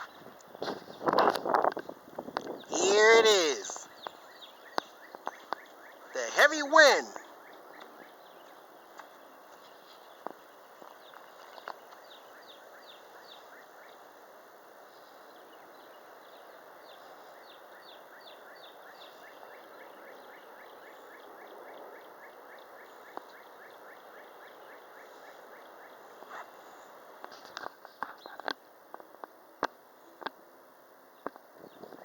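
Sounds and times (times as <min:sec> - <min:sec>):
wind noise: 0:00.0 - 0:02.9
bird chirping: 0:02.5 - 0:14.2.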